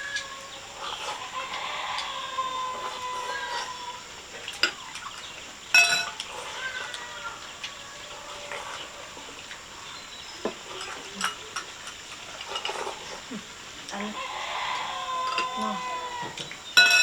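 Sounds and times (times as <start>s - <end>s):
faint animal calls: 0.0s - 5.2s, 6.0s - 11.5s, 12.8s - 17.0s
dishes clinking: 4.4s - 6.3s, 10.4s - 13.2s, 15.2s - 17.0s.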